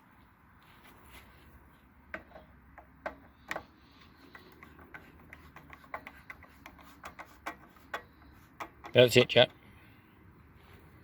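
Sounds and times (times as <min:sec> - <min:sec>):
screws clicking and tapping: 0:02.1 - 0:09.4.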